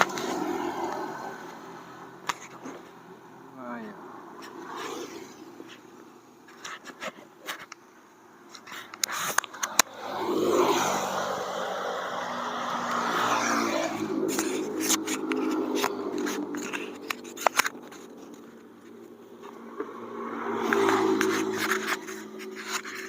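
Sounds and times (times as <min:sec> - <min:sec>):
wind rushing: 0:09.9 - 0:16.2
sharp clicks and rattles: 0:14.3 - 0:19.9.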